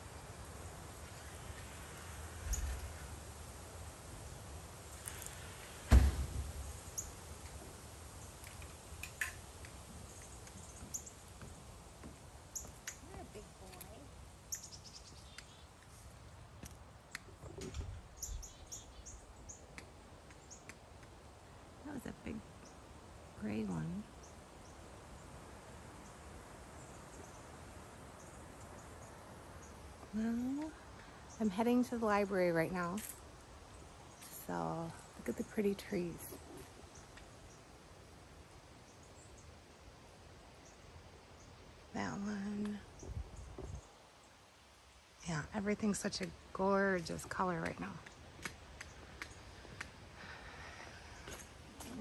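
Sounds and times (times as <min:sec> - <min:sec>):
small birds chirping: 0:00.0 - 0:03.2, 0:06.6 - 0:44.4, 0:45.2 - 0:52.0
outdoor background noise: 0:00.0 - 0:52.0
faint high bird chirps: 0:01.0 - 0:03.0
thump on microphone: 0:05.9 - 0:06.4.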